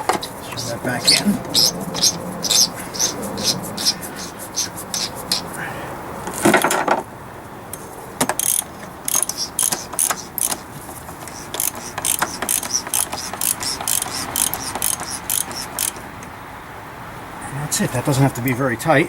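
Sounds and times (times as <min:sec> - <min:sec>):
ratchet wrench clicking: 0:08.3 - 0:10.6, 0:11.2 - 0:16.0.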